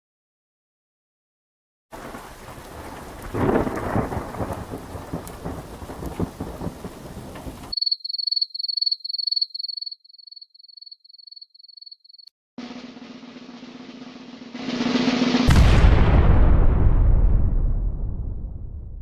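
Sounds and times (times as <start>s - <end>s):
rain: 1.9s - 7.7s
rolling thunder: 2.0s - 7.7s, 14.6s - 19.0s.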